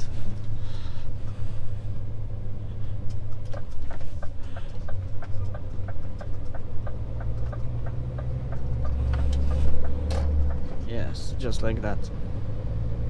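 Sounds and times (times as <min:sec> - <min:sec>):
truck engine running: 0:00.0 - 0:13.0
regular ticking: 0:03.0 - 0:11.8.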